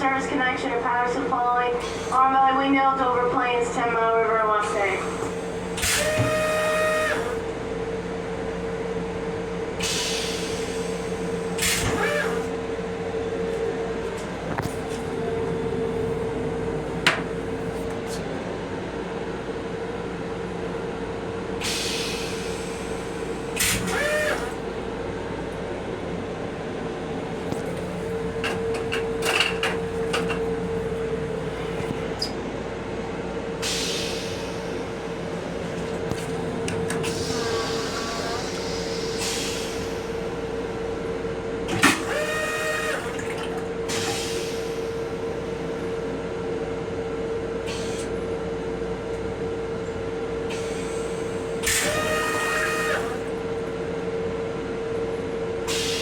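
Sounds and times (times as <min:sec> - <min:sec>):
railcar electrical hum: 0:00.0 - 0:56.0
air hisses: 0:37.1 - 0:40.1.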